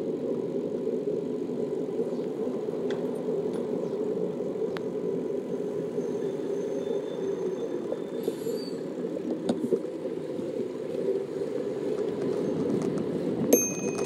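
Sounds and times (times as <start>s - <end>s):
bicycle tyres rumbling on asphalt: 9.4s - 14.0s
bike rattling and clicking: 12.8s - 14.0s.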